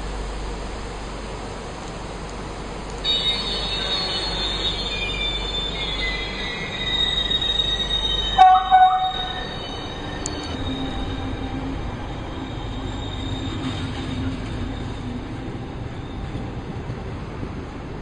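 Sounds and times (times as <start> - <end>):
train running noise: 0.0 - 18.0
train wheels squealing on rails: 2.9 - 17.3
train horn blasts: 8.4 - 9.5.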